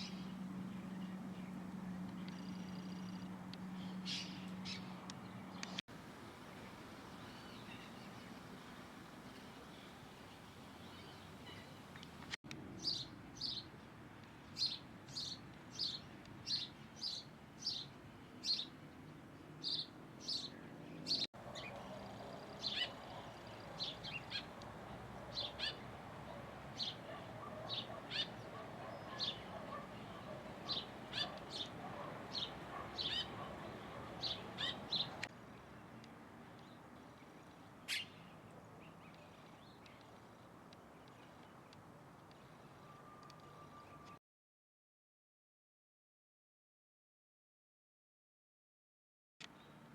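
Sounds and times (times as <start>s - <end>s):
faint background hiss: 0.0s - 44.1s
bird high chirps: 21.1s - 24.6s, 25.3s - 35.2s.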